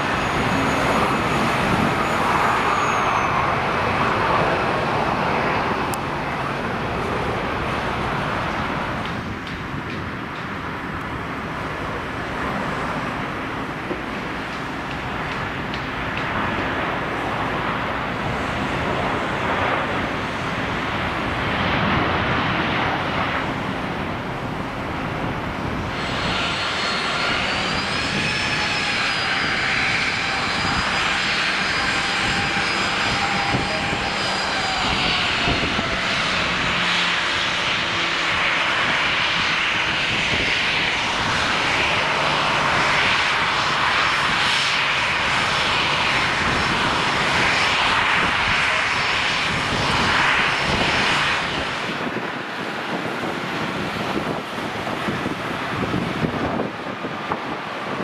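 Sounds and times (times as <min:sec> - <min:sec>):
high whining tones: 0:00.0 - 0:05.0, 0:25.9 - 0:38.3
jet engines rushing: 0:00.0 - 0:58.0.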